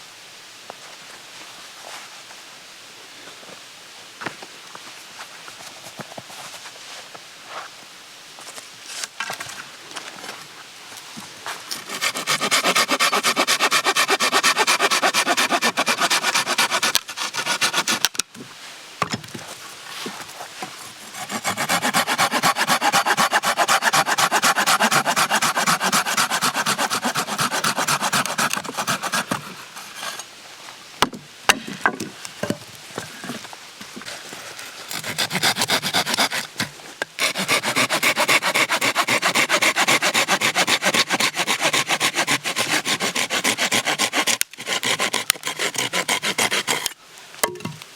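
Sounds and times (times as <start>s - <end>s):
hand saw cutting wood: 11.7s - 18.2s, 20.7s - 30.3s, 34.9s - 47.0s.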